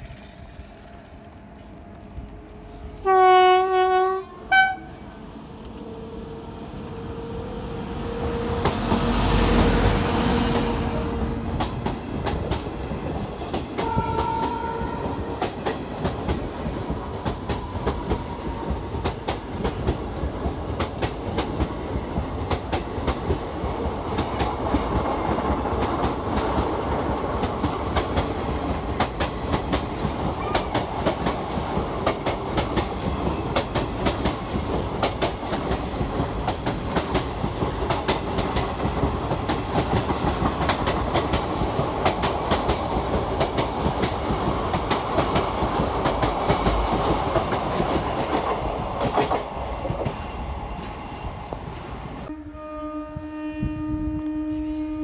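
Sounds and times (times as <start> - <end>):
wheels clickety-clack over rail joints: 0.0 - 4.8, 8.2 - 52.3
locomotive hum and rush: 0.0 - 55.0
train horn blast: 3.0 - 5.2, 5.8 - 11.6, 13.8 - 15.5, 52.2 - 55.0.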